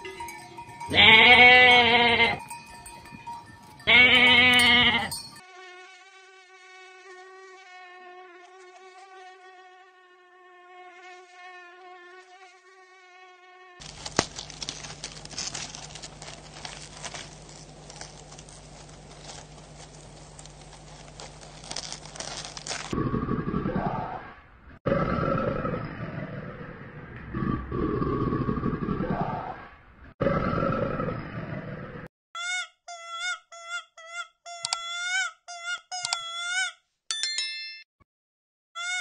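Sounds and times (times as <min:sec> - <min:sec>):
goat bleating: 0:00.1 - 0:02.5, 0:03.9 - 0:05.2
insect-like buzz: 0:04.6 - 0:23.0
low hum: 0:13.9 - 0:32.1.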